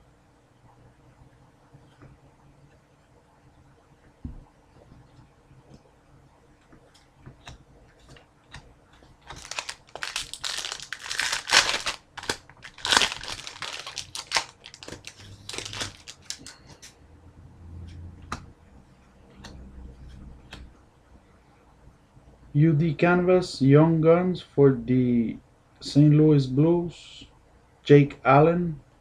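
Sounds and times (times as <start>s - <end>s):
foil wrapper crinkling: 9.2s - 16.5s.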